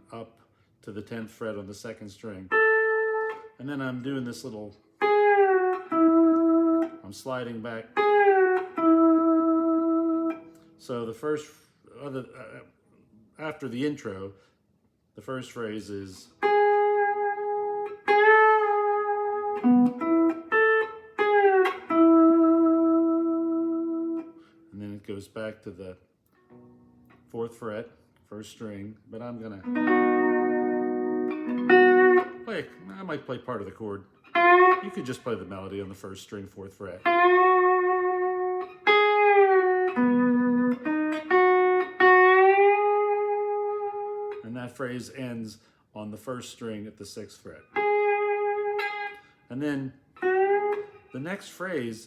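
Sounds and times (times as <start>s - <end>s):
lap steel guitar melody: 2.5s - 4.4s, 5.0s - 10.8s, 16.2s - 24.6s, 26.4s - 27.3s, 29.2s - 35.9s, 37.0s - 44.6s, 47.7s - 49.4s, 50.1s - 51.9s.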